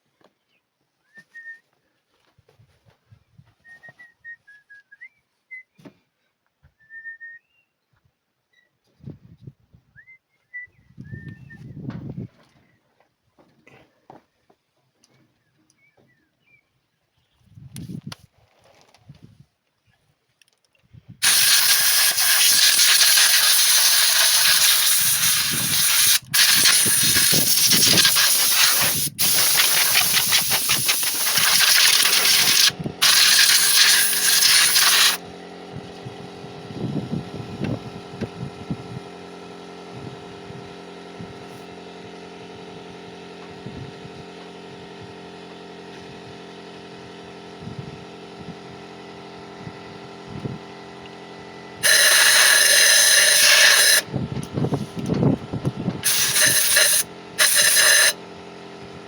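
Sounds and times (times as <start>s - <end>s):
compressed air hissing from blow gun: 21.2s - 35.2s, 51.8s - 54.0s, 56.0s - 58.2s
low machine hum: 29.0s - 59.0s.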